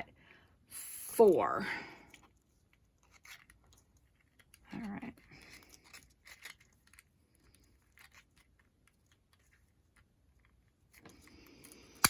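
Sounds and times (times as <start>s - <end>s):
faint clicks and rustles of handling: 1.9s - 12.0s.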